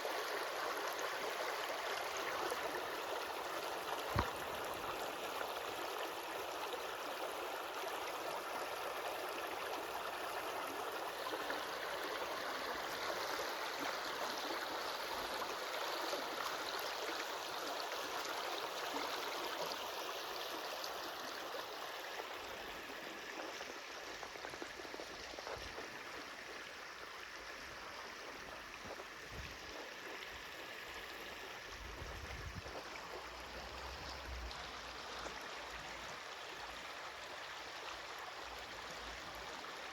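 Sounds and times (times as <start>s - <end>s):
stream water rushing: 0.0s - 27.0s.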